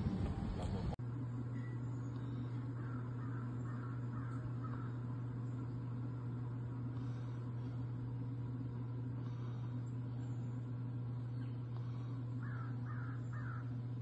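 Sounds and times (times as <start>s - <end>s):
steady low hum: 0.0s - 14.0s
bird calling: 1.6s - 7.8s, 9.2s - 14.0s.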